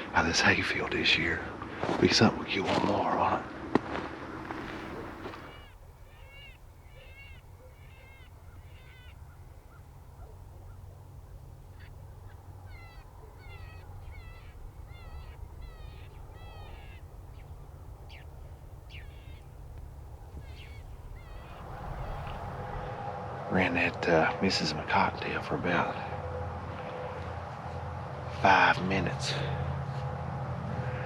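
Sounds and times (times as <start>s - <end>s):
wind rumble on microphone: 3.6s - 24.4s
rabbit distress squeals: 5.0s - 10.8s, 11.7s - 22.8s.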